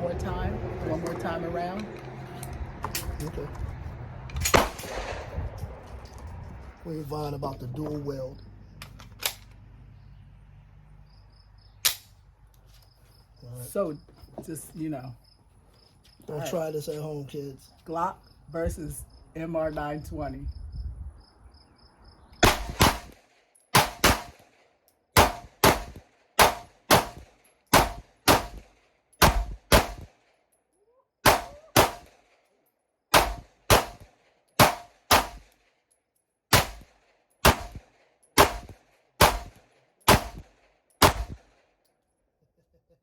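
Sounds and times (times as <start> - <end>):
pistol shots: 4.5 - 5.3, 22.4 - 24.6, 25.2 - 30.2, 31.2 - 32.3, 33.1 - 35.6, 36.5 - 41.6.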